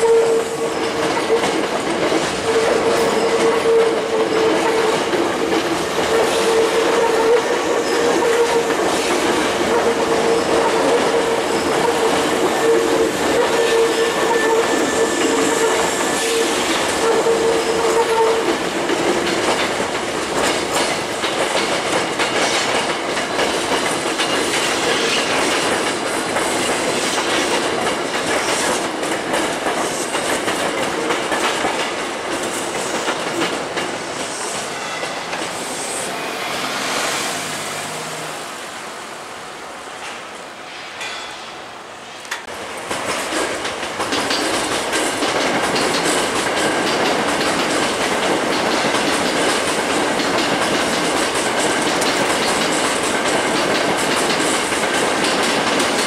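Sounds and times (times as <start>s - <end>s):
electric trains running past: 0.0s - 56.0s
wheel-on-rail noise: 42.2s - 56.0s.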